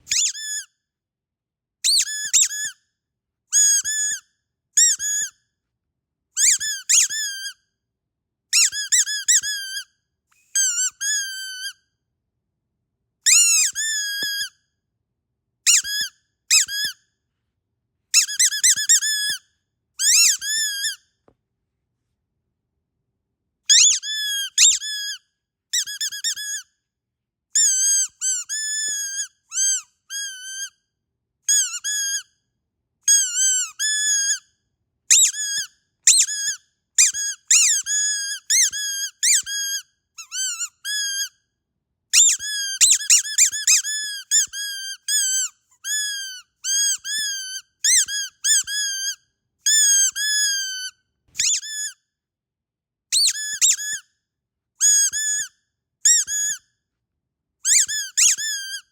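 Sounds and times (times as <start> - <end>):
squeaky dog toy squeaking: 0.0 - 0.8, 1.8 - 2.8, 3.5 - 5.4, 6.4 - 7.6, 8.5 - 11.9, 13.2 - 14.6, 15.6 - 17.0, 18.1 - 21.1, 23.7 - 26.8, 27.5 - 30.8, 31.4 - 32.4, 33.0 - 34.5, 35.1 - 41.4, 42.1 - 52.1, 53.1 - 54.1, 54.8 - 56.6, 57.6 - 58.9.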